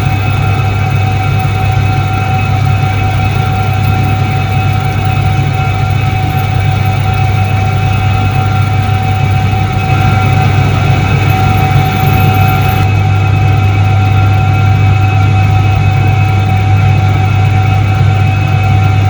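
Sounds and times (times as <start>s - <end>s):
washing machine motor hum: 0.0s - 13.3s
constant high-pitched tone: 0.0s - 19.0s.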